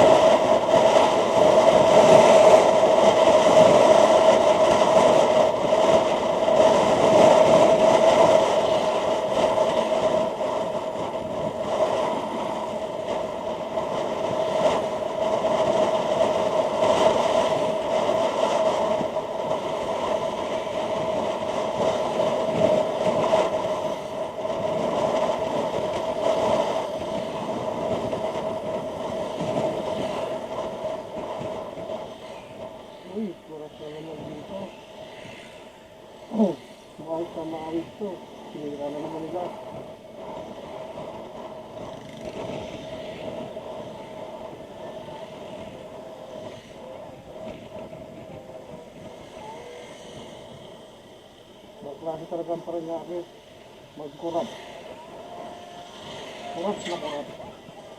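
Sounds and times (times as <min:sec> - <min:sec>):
constant hum: 0:00.0 - 0:57.9
wind and road noise: 0:00.0 - 0:57.9
faint steady tone: 0:42.8 - 0:57.9.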